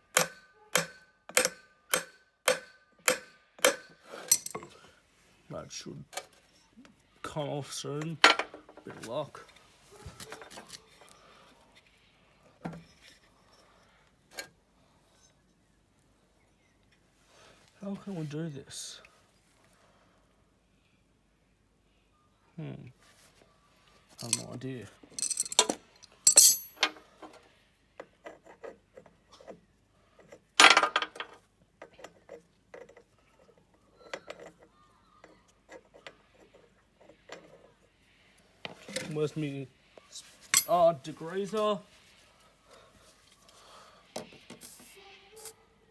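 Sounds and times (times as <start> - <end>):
tools clicking and knocking: 0.1 - 4.8, 24.2 - 27.4, 30.3 - 33.1, 40.5 - 40.8
hand tools clinking on metal: 3.1 - 4.8, 24.2 - 27.0, 40.4 - 41.7
metallic clatter: 25.2 - 27.0.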